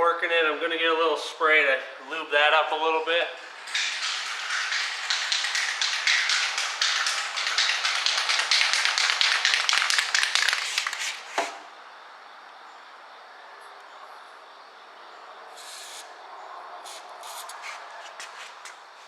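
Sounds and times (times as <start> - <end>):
aerosol spray hissing in spurts: 15.6 - 16.1, 16.9 - 17.8.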